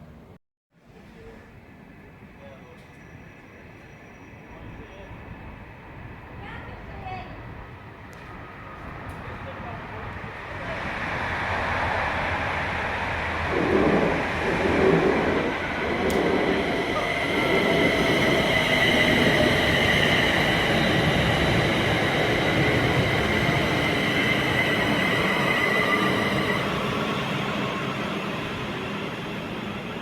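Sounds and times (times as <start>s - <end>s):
train wheels rushing on rails: 6.4s - 30.0s
high steady whine: 13.3s - 18.4s.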